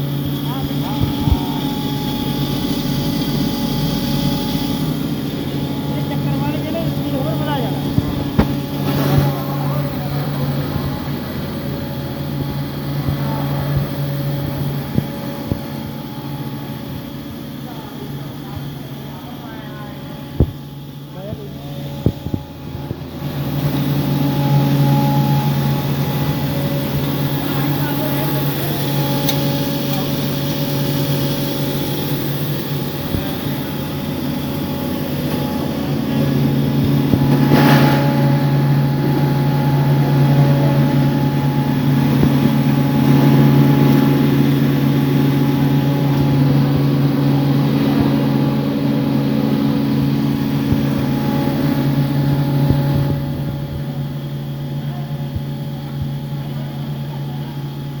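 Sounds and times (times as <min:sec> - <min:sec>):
feed grinder machine hum: 0:00.0 - 0:58.0
sharp knock: 0:08.3 - 0:08.8.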